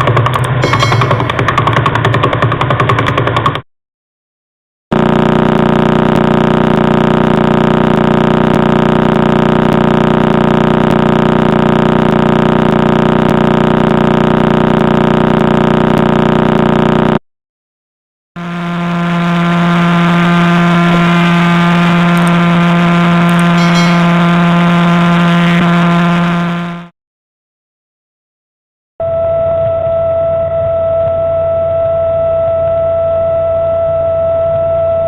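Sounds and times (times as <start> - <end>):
steady pitched hum: 0.6 - 1.6, 18.4 - 26.9
steady pulsing buzz: 18.4 - 26.9.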